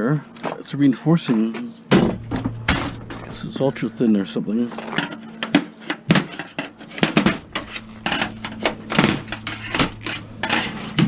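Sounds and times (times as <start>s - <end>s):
steady low hum: 0.0s - 11.0s
metal and plastic scrap clattering: 1.9s - 3.5s, 4.6s - 11.0s.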